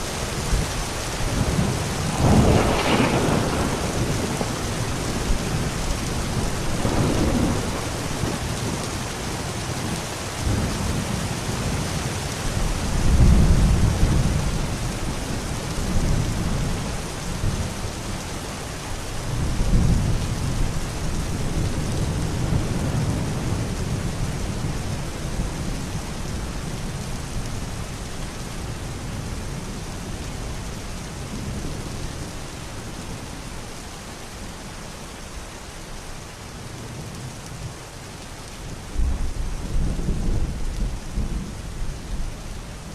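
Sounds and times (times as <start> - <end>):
steady rain: 0.0 - 42.9
rolling thunder: 1.3 - 9.0.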